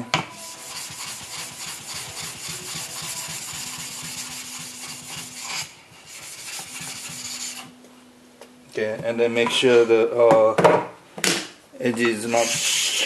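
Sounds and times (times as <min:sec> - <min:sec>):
whetstone rubbing strokes: 0:00.4 - 0:07.8, 0:12.2 - 0:13.0.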